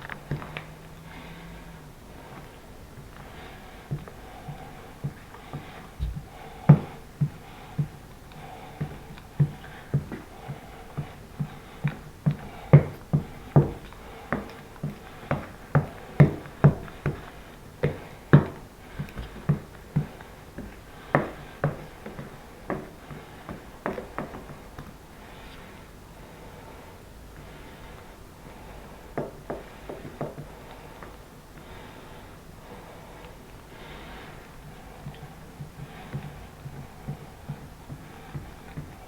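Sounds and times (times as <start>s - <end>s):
light knocks and taps: 3.9s - 7.9s.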